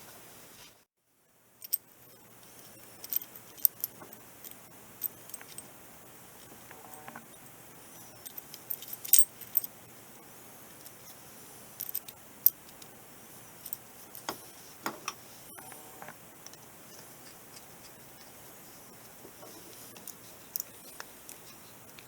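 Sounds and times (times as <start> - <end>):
small metal parts clinking: 1.6 - 5.7, 8.1 - 9.8, 11.8 - 12.8, 20.0 - 21.4.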